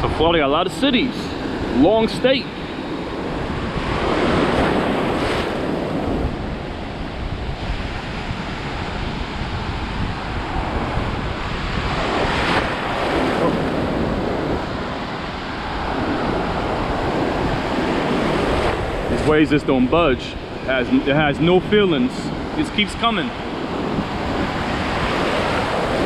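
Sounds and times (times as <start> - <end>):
ocean waves breaking: 0.0 - 26.0
wind buffeting microphone: 0.0 - 26.0.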